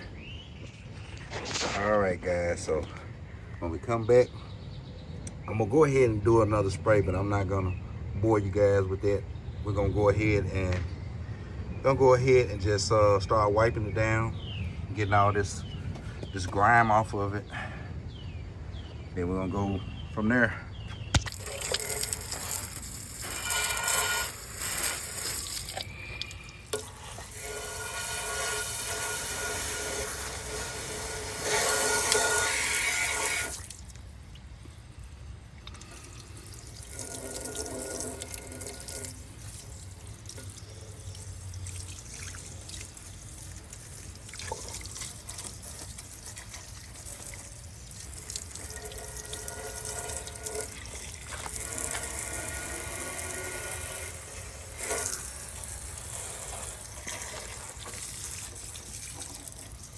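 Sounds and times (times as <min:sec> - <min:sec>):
water spraying hiss: 0:21.2 - 0:33.9, 0:46.9 - 0:59.9.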